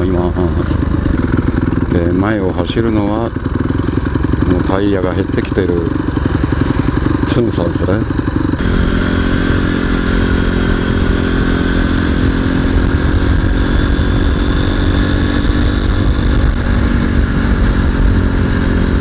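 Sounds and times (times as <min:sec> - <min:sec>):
motorcycle engine cruising: 0:00.0 - 0:19.0
wind rumble on microphone: 0:12.1 - 0:19.0.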